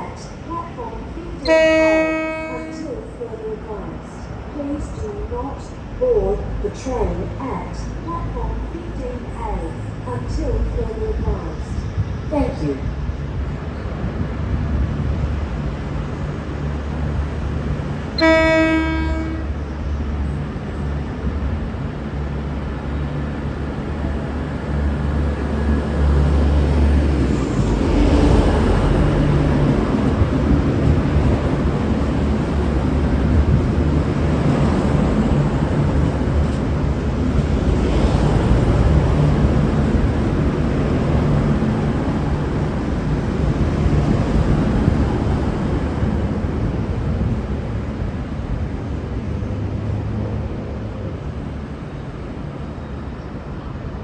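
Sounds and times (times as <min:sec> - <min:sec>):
train diesel engines running: 0:00.0 - 0:54.0
low train horn blast: 0:01.4 - 0:03.1, 0:18.1 - 0:19.7.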